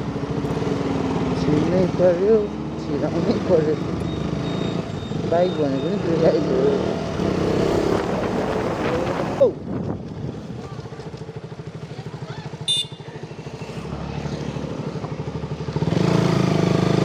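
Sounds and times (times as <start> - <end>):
high-pitched beep: 4.0 - 6.1
motorcycle engine pulsing: 9.6 - 17.0.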